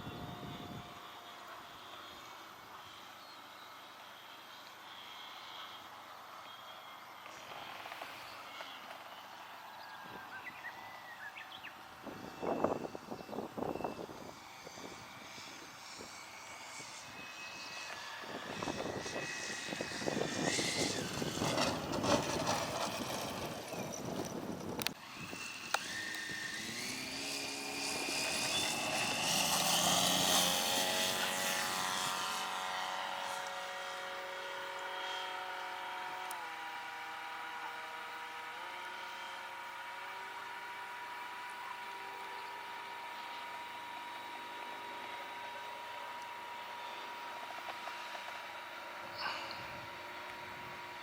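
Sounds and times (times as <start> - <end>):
model airplane motor droning: 0.0 - 51.0
gusty wind noise: 18.2 - 25.5.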